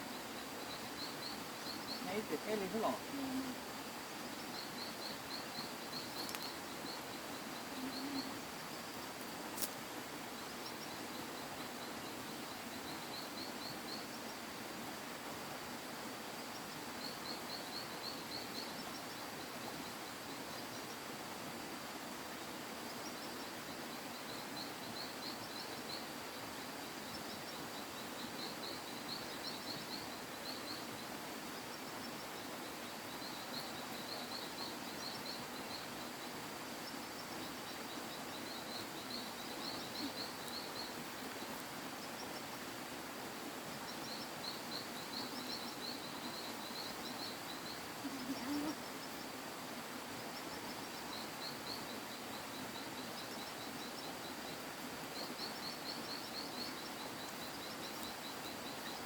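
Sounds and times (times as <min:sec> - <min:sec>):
steady background hiss: 0:00.0 - 0:59.0.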